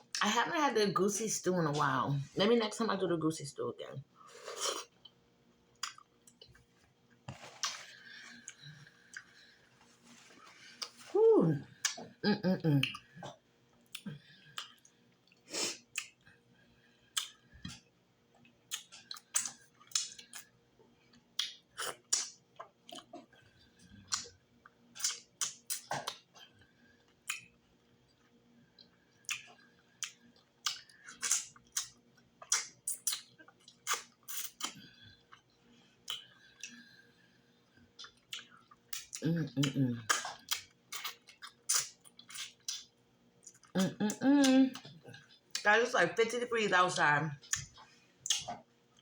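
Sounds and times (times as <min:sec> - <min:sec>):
chewing and wet mouth smacking: 0:05.8 - 0:06.6, 0:07.3 - 0:09.4, 0:12.8 - 0:16.3, 0:17.1 - 0:17.8, 0:18.4 - 0:23.4, 0:24.0 - 0:36.9, 0:37.8 - 0:45.7, 0:47.4 - 0:49.0.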